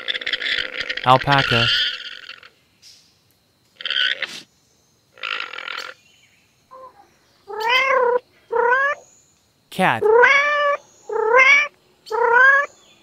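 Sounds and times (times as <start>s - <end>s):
alpaca calling: 0.1s - 2.1s, 6.7s - 9.0s, 10.0s - 12.7s.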